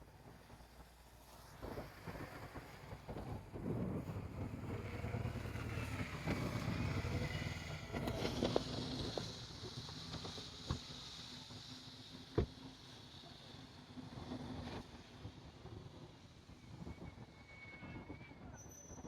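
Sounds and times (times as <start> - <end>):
large vehicle engine running: 1.6 - 16.4.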